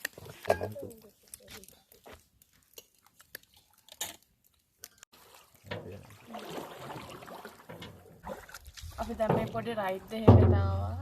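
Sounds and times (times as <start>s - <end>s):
water splashing around canoe paddle: 5.1s - 10.5s.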